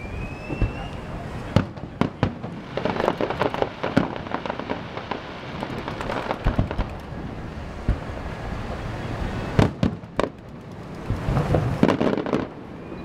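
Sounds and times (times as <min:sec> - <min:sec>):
fireworks bangs: 0:00.4 - 0:12.9
small rapid firework pops: 0:00.5 - 0:07.2, 0:09.6 - 0:12.6.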